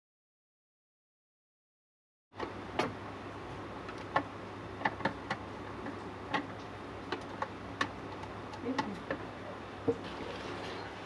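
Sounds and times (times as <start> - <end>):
steady low hum: 2.4 - 11.0
sharp clicks and taps: 3.8 - 9.3.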